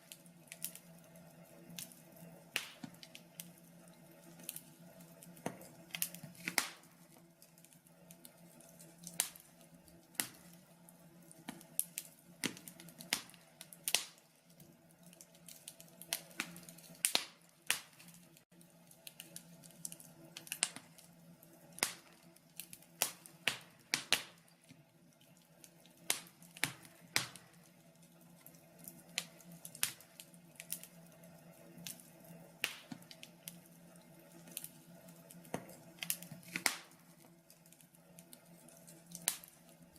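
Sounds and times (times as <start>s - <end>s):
logs crackling and popping: 0.0s - 39.9s.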